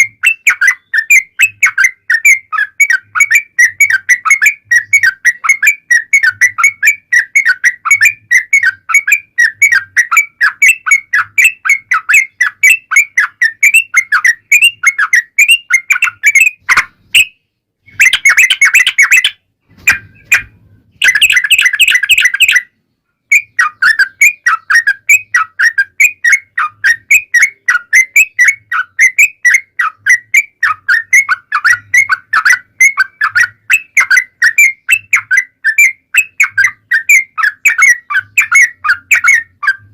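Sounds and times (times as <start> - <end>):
bulbul chattering song: 0.0 - 39.9.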